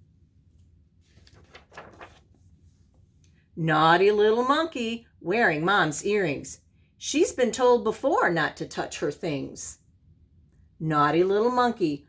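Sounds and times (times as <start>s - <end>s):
book page turning: 0.5s - 3.3s.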